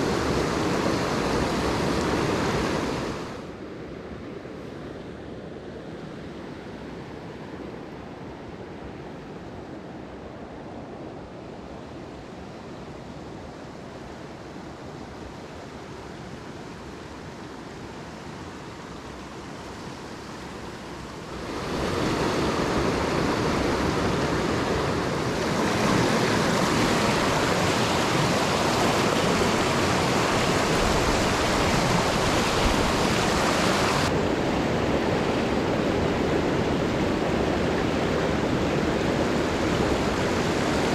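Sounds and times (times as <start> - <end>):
stream water rushing over rocks: 0.0 - 3.4, 18.2 - 40.9.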